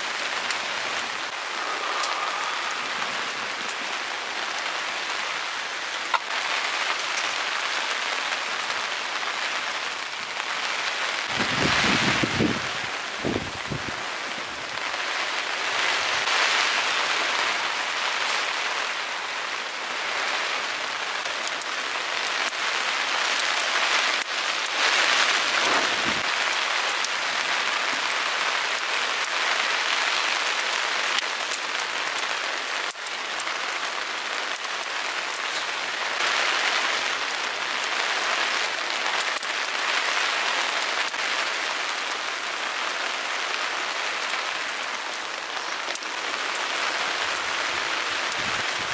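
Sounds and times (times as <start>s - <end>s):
heavy rain: 0.0s - 48.9s
sharp raindrop hits: 20.2s - 29.4s.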